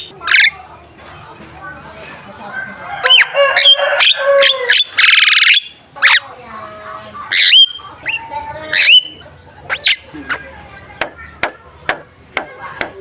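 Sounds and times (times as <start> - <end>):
bird clicks and chatter: 0.0 - 13.0
harsh rasping bird call: 3.0 - 6.5, 7.2 - 10.6.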